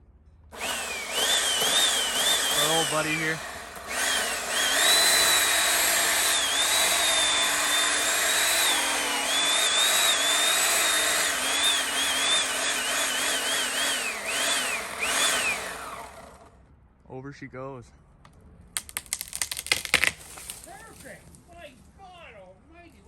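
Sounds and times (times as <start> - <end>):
electric chainsaw cutting wood: 0.5 - 16.6, 18.8 - 20.2.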